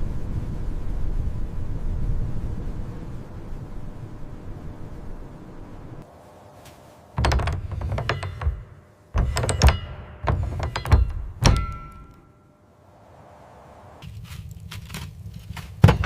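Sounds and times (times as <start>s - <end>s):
hard objects knocking and rattling: 7.2s - 12.2s, 15.8s - 16.0s.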